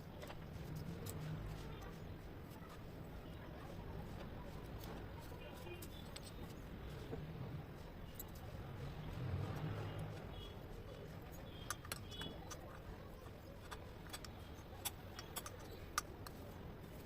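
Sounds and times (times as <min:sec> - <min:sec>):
metal parts and tools clicking: 0:00.2 - 0:02.0, 0:08.0 - 0:10.2, 0:11.1 - 0:17.0.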